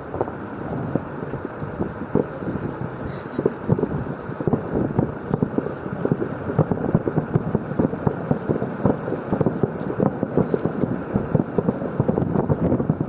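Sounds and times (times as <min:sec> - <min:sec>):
distant fireworks popping: 0:00.0 - 0:13.0.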